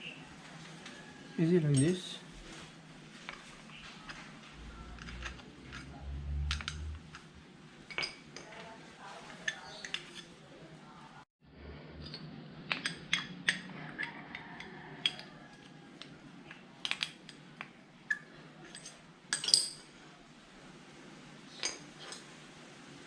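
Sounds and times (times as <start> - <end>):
metal parts and tools clinking: 1.6 - 10.4, 16.8 - 17.5, 18.1 - 20.0, 21.5 - 22.3.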